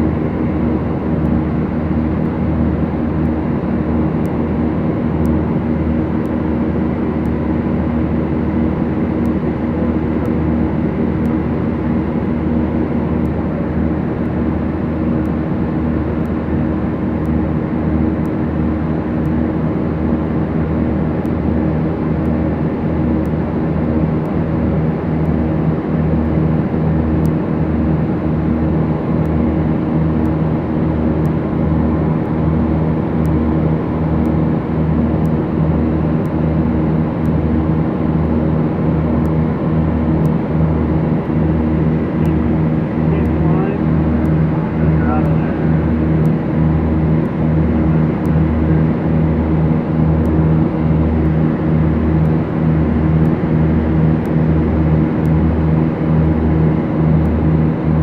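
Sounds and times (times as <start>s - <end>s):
twin piston engines droning: 42.2s - 46.2s.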